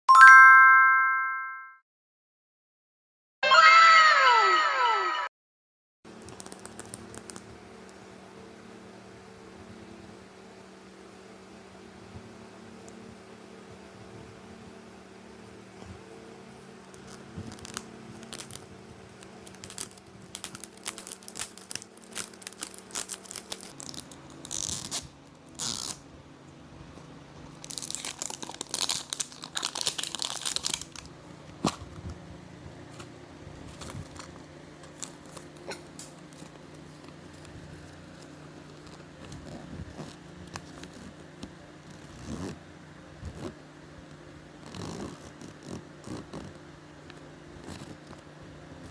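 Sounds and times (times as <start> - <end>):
small clicks and crunches: 6.2 - 8.0, 16.8 - 26.0, 27.4 - 32.2, 33.0 - 42.6
plastic and foil crinkling: 16.9 - 26.0, 27.5 - 31.1, 33.7 - 37.0.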